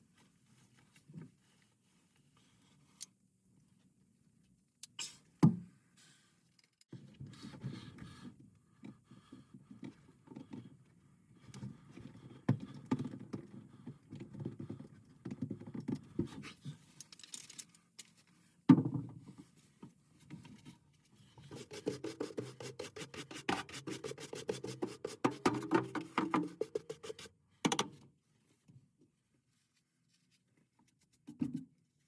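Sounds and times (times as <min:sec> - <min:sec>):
hand scraping and brushing: 0:21.2 - 0:27.3
fast scrubbing strokes: 0:21.5 - 0:25.4.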